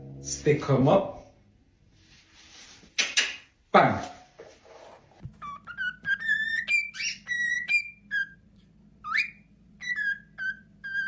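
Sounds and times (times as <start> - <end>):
parrot whistling: 5.4 - 8.4, 9.0 - 11.0.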